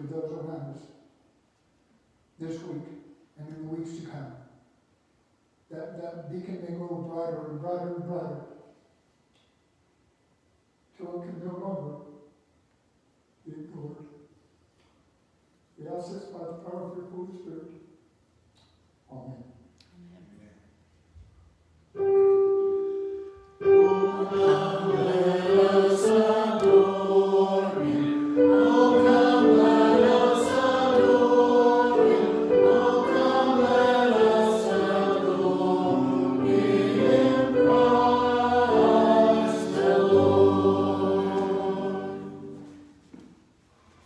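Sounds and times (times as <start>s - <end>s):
choir singing sacred piece: 22.0s - 43.2s.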